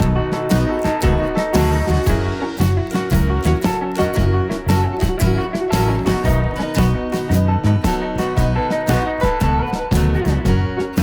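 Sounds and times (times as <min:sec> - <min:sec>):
upbeat guitar music: 0:00.0 - 0:11.0.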